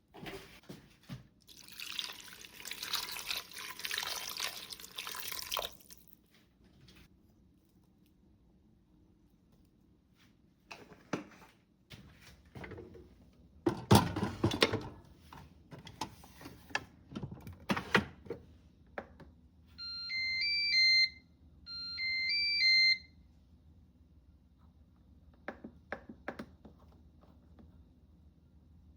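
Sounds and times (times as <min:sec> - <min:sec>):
kitchen knocks and handling: 0:13.7 - 0:15.0
appliance chime beeping melody: 0:19.8 - 0:23.1.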